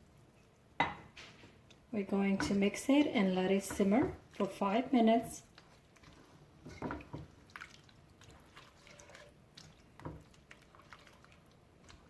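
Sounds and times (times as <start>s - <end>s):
sauce simmering in a skillet: 3.9s - 12.0s.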